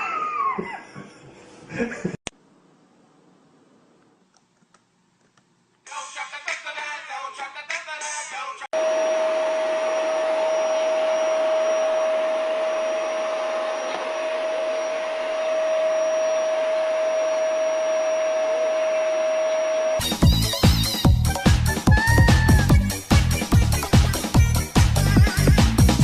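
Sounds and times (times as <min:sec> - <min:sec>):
electronic dance music: 0:20.0 - 0:26.0.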